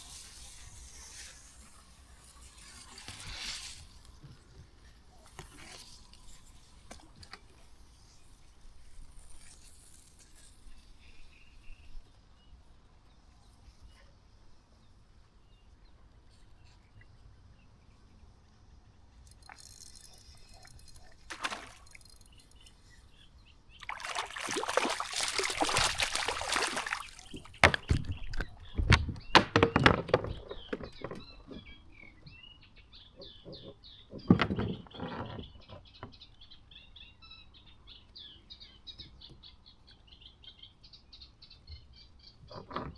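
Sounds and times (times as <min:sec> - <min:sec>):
bird chirping: 0:19.2 - 0:42.7
water splashing and sloshing: 0:19.4 - 0:22.7, 0:23.8 - 0:31.2
sharp knocks and thumps: 0:23.8 - 0:31.3.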